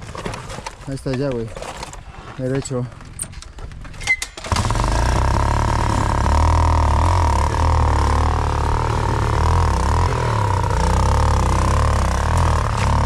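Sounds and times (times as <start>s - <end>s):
dirt bike engine at low revs: 4.4s - 13.0s.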